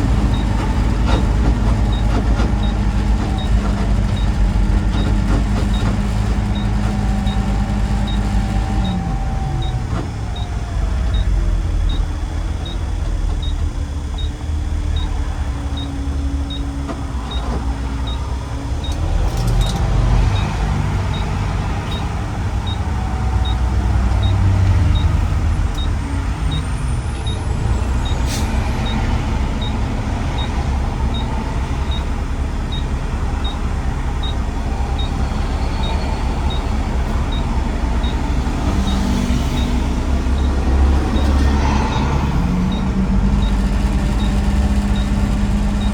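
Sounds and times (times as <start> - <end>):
car engine and road rumble: 0.0 - 45.9.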